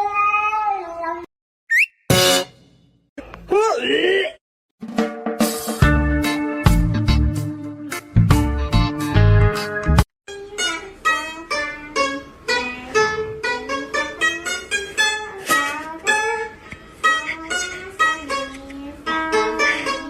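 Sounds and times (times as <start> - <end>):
music with bass: 5.8 - 10.0
plucked string instrument: 10.3 - 20.0.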